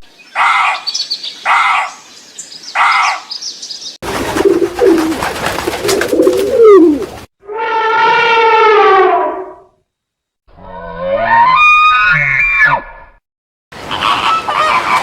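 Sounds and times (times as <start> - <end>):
animal calls: 0.3 - 2.1, 2.7 - 3.4.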